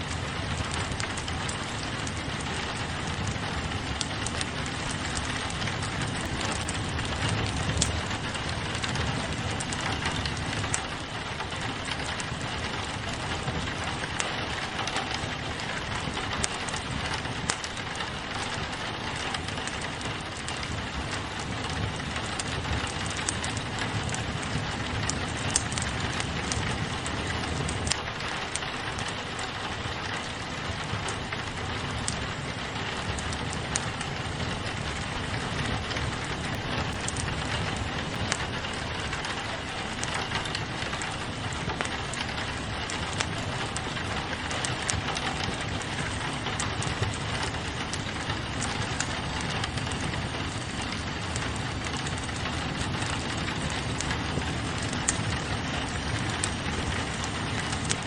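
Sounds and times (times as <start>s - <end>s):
rain pattering on a window: 0.0s - 58.0s
wood fire crackling: 0.0s - 58.0s.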